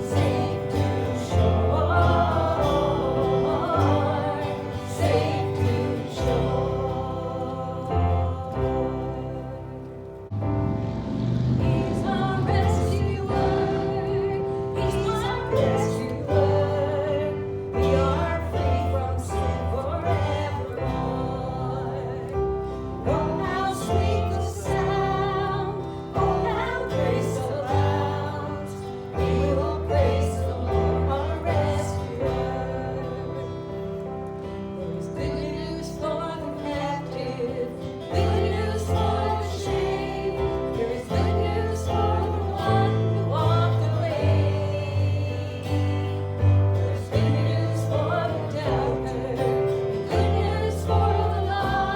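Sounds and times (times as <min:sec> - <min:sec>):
pulsing bass line: 0:00.0 - 0:17.0
held organ-like tone: 0:00.0 - 0:35.3
voices singing: 0:00.0 - 0:51.9.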